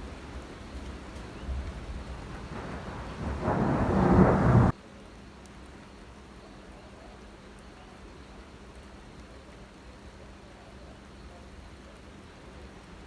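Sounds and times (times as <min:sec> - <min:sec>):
steady rain: 0:00.0 - 0:13.0
thunder rumbling: 0:01.4 - 0:04.8.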